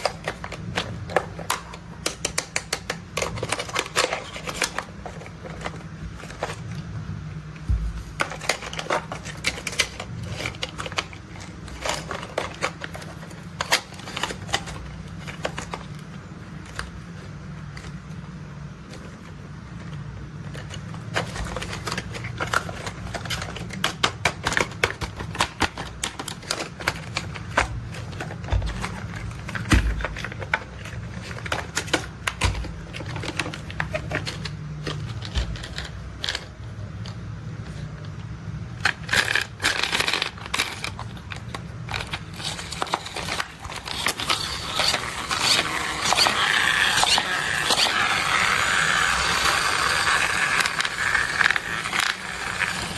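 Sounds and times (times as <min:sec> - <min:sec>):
plastic toys clicking: 0:00.0 - 0:06.6, 0:38.8 - 0:52.9
steady low hum: 0:02.8 - 0:52.9.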